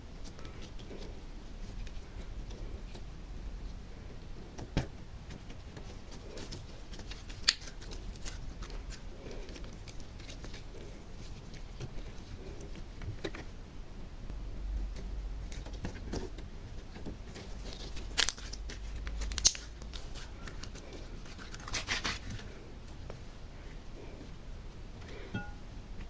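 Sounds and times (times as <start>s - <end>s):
small clicks and crinkles: 4.0s - 13.7s, 14.8s - 23.3s
sharp snaps: 18.1s - 20.1s.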